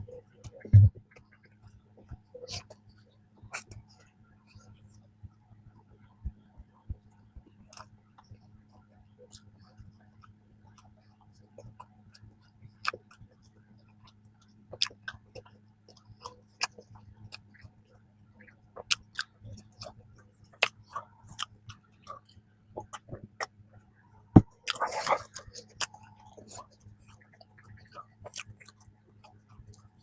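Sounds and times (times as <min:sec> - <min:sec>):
faint steady hum: 0:00.0 - 0:30.0
wet chewing mouth clicks: 0:14.0 - 0:17.7, 0:18.4 - 0:23.5, 0:24.4 - 0:30.0.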